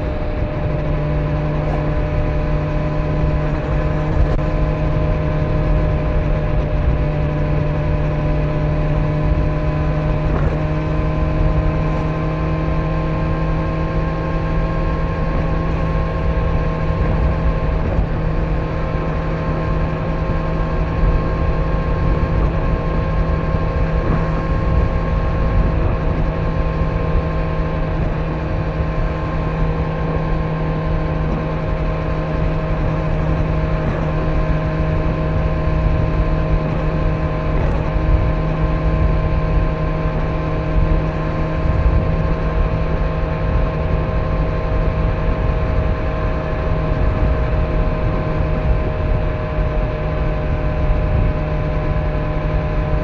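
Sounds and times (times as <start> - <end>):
motorcycle engine cruising: 0.0 - 53.0
road and wind noise: 0.0 - 53.0.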